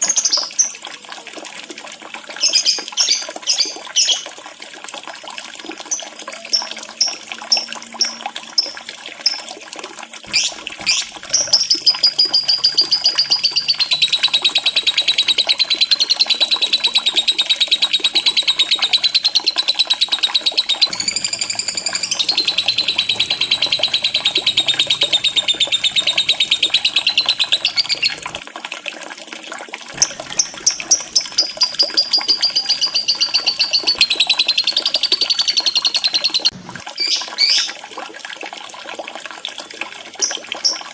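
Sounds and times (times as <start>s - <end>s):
lovebird chirping and trilling: 10.3s - 28.4s, 30.0s - 37.7s.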